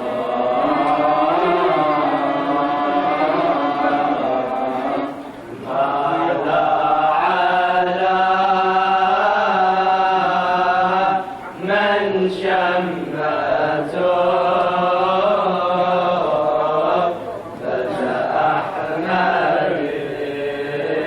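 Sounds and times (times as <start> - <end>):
group chanting held notes: 0.0 - 21.0.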